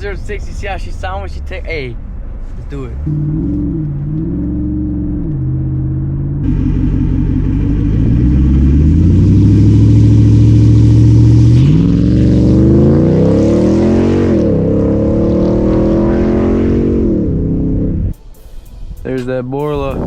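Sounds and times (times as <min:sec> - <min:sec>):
car engine accelerating hard: 0:00.0 - 0:18.2.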